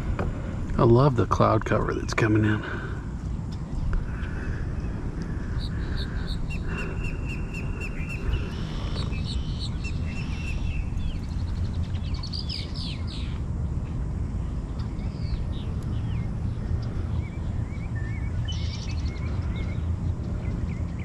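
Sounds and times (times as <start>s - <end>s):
birds chirping and singing: 0.0s - 13.5s, 14.7s - 21.0s
steady low rumble: 0.0s - 21.0s.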